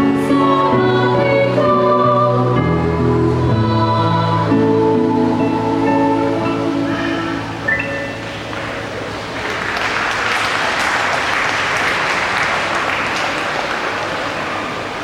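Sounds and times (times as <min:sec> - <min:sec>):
audience applause: 0:08.5 - 0:15.0.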